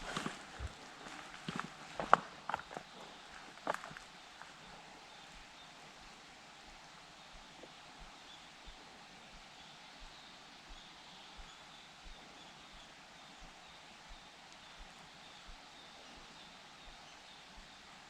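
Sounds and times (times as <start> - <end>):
soft low thumps: 0.0 - 3.0.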